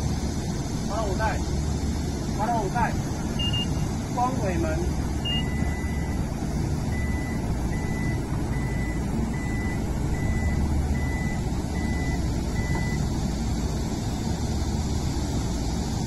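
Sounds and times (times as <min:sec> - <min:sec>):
steady low hum: 0:00.0 - 0:16.0
warning buzzer beeps: 0:03.4 - 0:03.8, 0:05.2 - 0:06.1.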